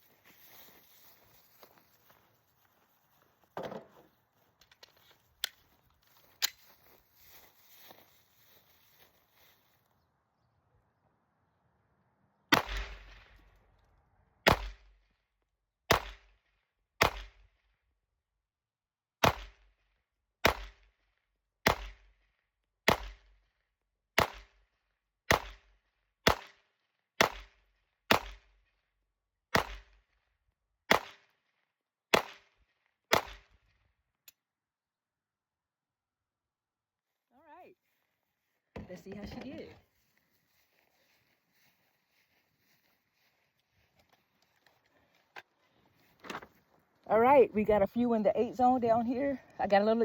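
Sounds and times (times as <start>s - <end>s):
pistol shots: 12.5s - 13.3s, 14.4s - 14.8s, 15.9s - 16.3s, 19.2s - 19.6s, 20.4s - 20.8s, 21.6s - 22.0s, 26.2s - 26.6s, 27.2s - 28.4s, 29.5s - 29.9s, 30.9s - 31.2s, 32.1s - 32.4s, 33.1s - 33.5s.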